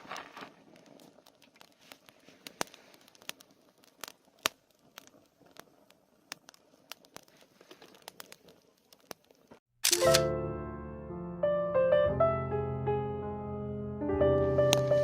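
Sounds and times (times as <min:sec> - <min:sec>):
campfire crackling: 0:00.0 - 0:09.7
sharp pops of fire: 0:00.0 - 0:10.1.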